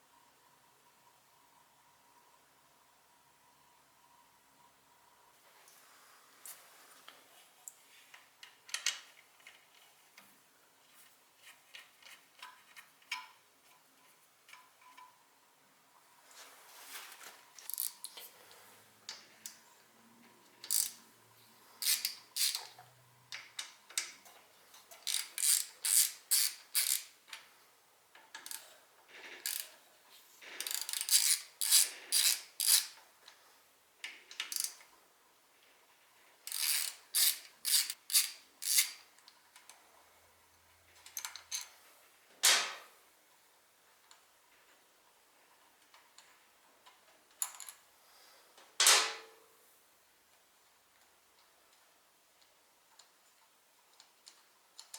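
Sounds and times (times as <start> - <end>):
ratchet wrench clicking: 17.6 - 18.1, 20.6 - 21.0, 21.8 - 22.7, 25.0 - 27.1, 29.4 - 29.7, 30.6 - 33.0, 34.4 - 34.8, 36.5 - 39.0.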